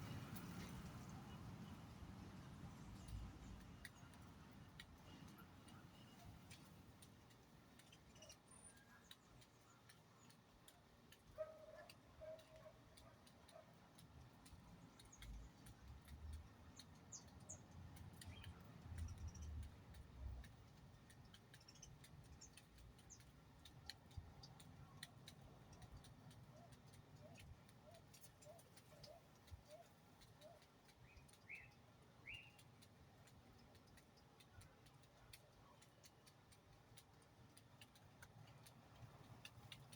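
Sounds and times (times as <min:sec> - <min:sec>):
faint clicks: 0:02.8 - 0:39.9
faint bird chirps: 0:26.6 - 0:32.7.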